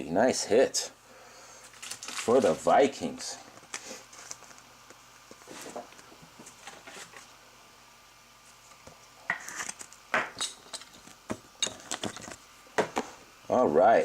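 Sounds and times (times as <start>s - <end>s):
cards rustling and sliding: 9.3s - 10.0s.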